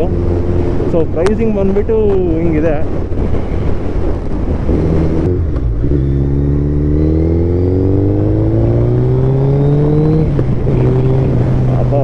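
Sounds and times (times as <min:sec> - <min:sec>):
motorcycle engine accelerating: 0:02.9 - 0:12.0.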